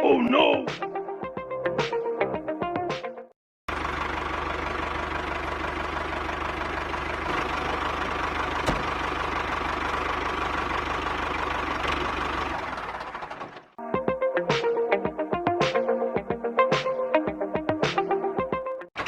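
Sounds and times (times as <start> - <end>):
engine idling: 3.7 - 13.8.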